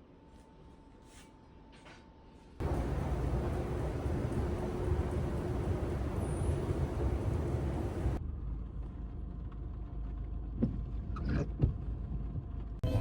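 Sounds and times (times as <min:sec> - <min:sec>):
car rumbling on road: 0:02.6 - 0:08.2.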